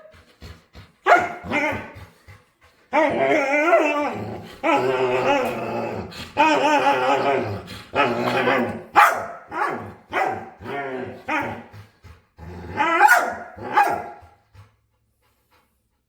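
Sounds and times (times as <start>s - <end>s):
dog yipping: 1.1s - 1.6s, 9.0s - 10.5s, 13.0s - 14.2s.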